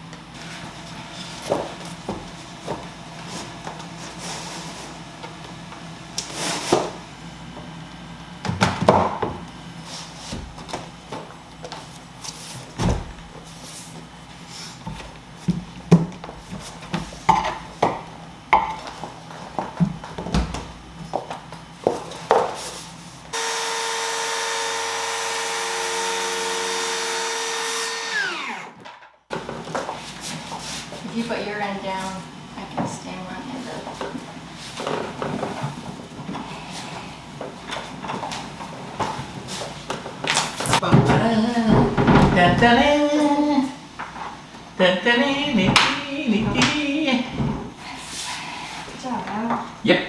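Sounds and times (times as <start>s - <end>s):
power saw motor running: 23.3s - 29.0s.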